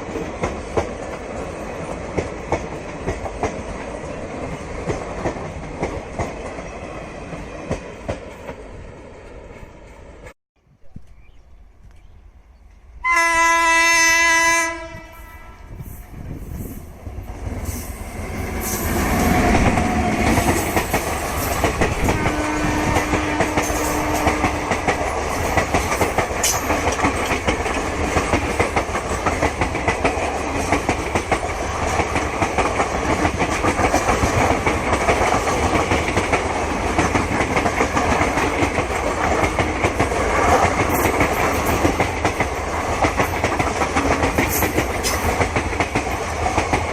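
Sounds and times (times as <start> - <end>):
train horn: 13.0 - 15.8, 21.9 - 24.9
train wheels clacking over rail joints: 17.6 - 46.9.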